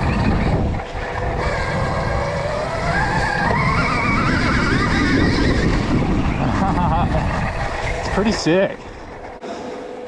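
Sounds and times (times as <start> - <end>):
electric motor whine: 0.0 - 6.4
tyre and wind noise: 0.0 - 9.4.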